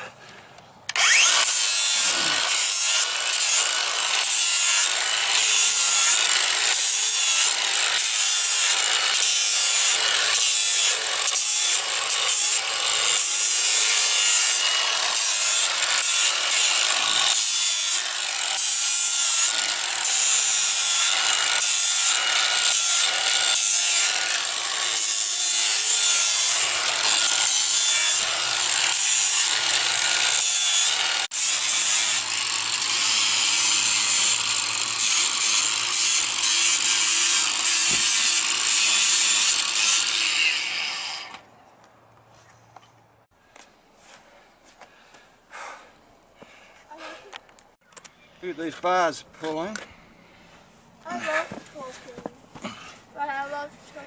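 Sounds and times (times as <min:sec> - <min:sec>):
grinder grinding hoof: 0:00.9 - 0:41.4.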